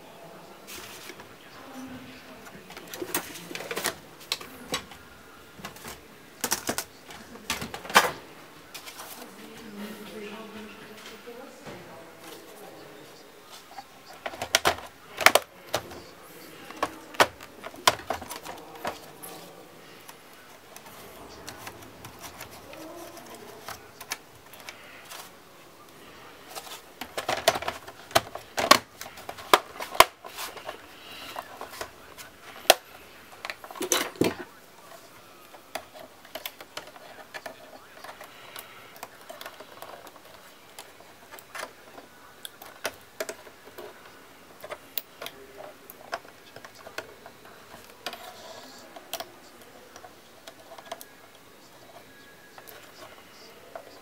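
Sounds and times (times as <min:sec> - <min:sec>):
laptop parts clicking and knocking: 0:05.6 - 0:08.2, 0:13.8 - 0:19.4, 0:26.5 - 0:34.5, 0:35.4 - 0:43.9.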